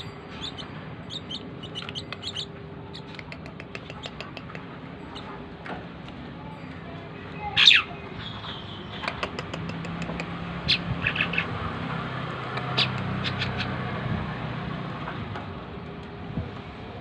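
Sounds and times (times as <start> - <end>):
bird chirps: 0.0 - 5.3, 12.6 - 13.7
vehicle engine humming: 0.0 - 17.0.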